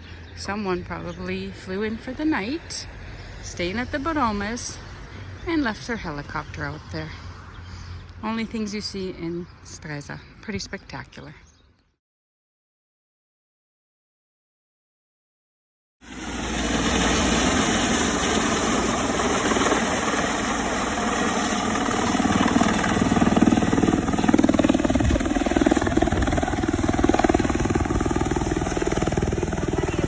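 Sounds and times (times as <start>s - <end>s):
helicopter turbine whine: 0.0s - 10.6s, 16.0s - 30.0s
helicopter rotor churning: 16.0s - 30.0s.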